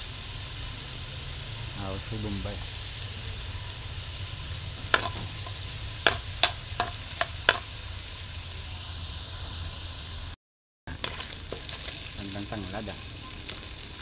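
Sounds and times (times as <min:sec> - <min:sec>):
food sizzling in a wok: 0:00.0 - 0:14.0
metal spatula clinking on pan: 0:04.9 - 0:07.7.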